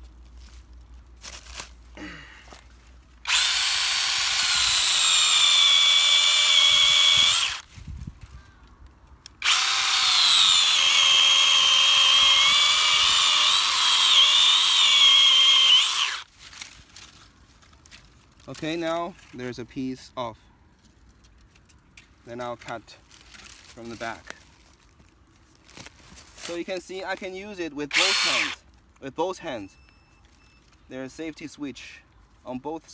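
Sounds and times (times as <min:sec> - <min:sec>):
mini chainsaw cutting wood: 0:03.2 - 0:07.7, 0:09.4 - 0:16.7, 0:27.8 - 0:28.6.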